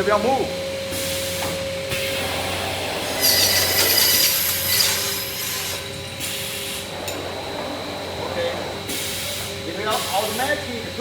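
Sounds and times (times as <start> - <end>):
saw spinning with steady hum: 2.3 - 6.2
saw cutting with loud hiss: 3.0 - 5.8.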